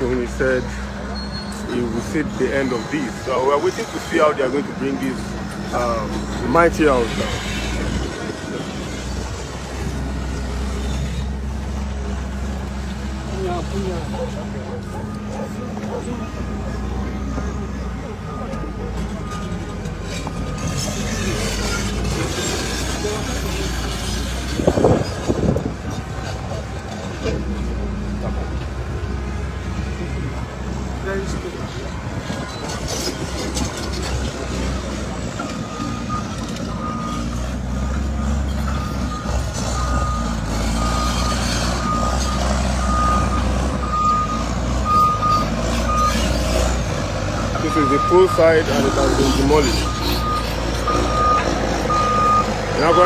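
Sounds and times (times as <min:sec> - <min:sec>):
demolition machinery engine rumble: 0:00.0 - 0:53.0
high metallic squeals: 0:00.1 - 0:09.2, 0:31.7 - 0:53.0.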